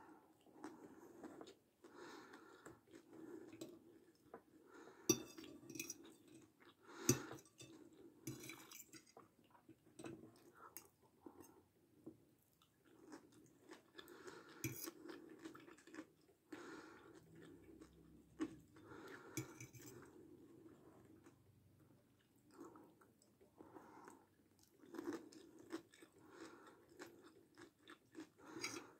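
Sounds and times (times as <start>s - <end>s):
chewing and crunching: 0.3s - 11.6s, 12.6s - 28.9s
fork clinking on glass plate: 5.1s - 6.0s.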